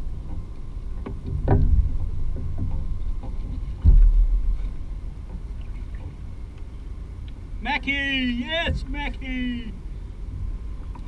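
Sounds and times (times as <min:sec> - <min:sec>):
water sloshing against kayak hull: 0:00.0 - 0:11.0
heavy thump: 0:01.1 - 0:04.9.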